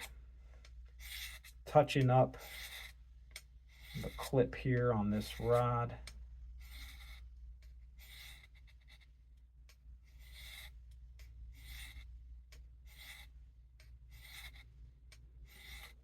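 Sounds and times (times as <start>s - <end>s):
steady low hum: 0.0s - 16.0s
knife scraping on sharpening rod: 2.4s - 3.0s, 3.8s - 4.4s.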